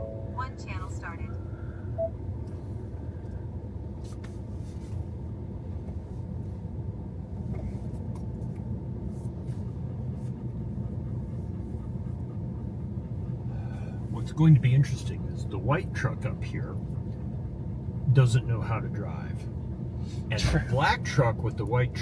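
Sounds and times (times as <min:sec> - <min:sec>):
engine and road rumble in cab: 0:00.0 - 0:22.0.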